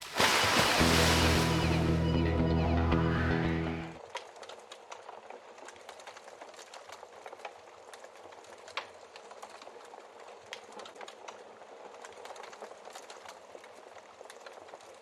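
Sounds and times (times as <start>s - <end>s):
wood fire crackling: 0.0s - 2.1s, 4.0s - 15.0s
intro music: 0.5s - 4.0s.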